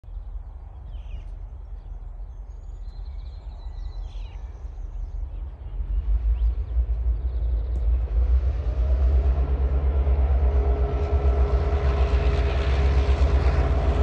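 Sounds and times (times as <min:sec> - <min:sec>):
train low rumble: 0:00.0 - 0:14.0
faint bird chirps: 0:00.5 - 0:06.6.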